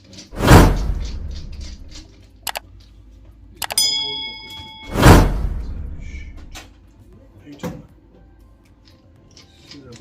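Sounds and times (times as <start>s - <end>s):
small metallic clicks: 1.0s - 2.9s, 3.6s - 3.8s
heavy thud: 4.9s - 6.6s.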